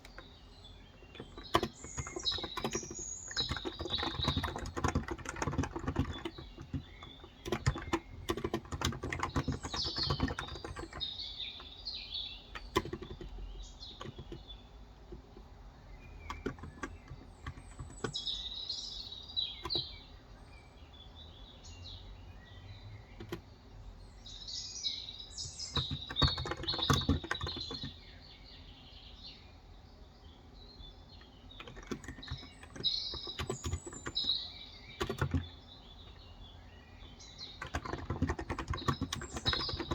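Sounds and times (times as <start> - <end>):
typing on keyboard: 0.0 - 11.7, 12.4 - 15.5, 16.1 - 20.0, 23.1 - 23.5, 25.3 - 28.0, 31.2 - 36.3, 37.1 - 39.9
birds chirping: 0.0 - 39.9.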